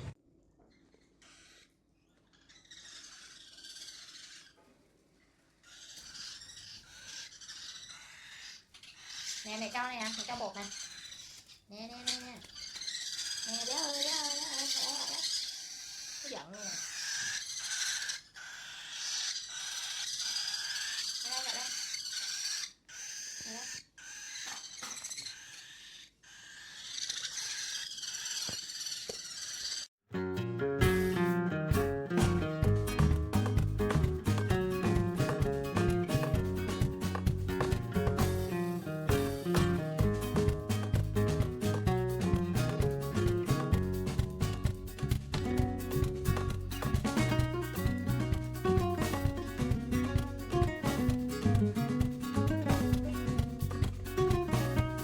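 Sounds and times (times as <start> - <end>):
parrot hissing: 12.9 - 28.4.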